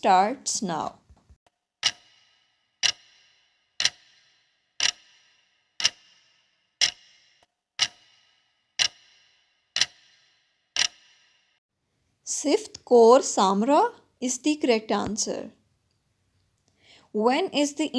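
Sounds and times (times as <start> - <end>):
clock ticking: 1.8 - 11.2.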